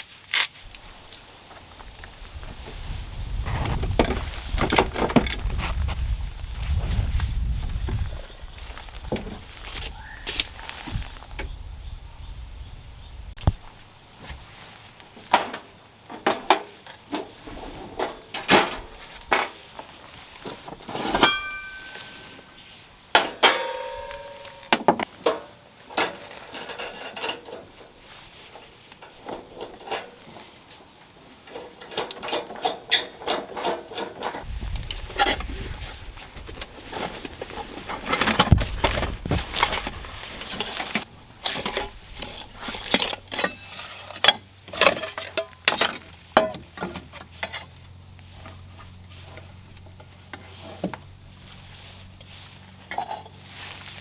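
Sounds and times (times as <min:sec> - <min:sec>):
cookware clattering: 0:21.1 - 0:22.6, 0:23.2 - 0:27.6
short metallic rings: 0:21.1 - 0:22.7, 0:23.3 - 0:27.4.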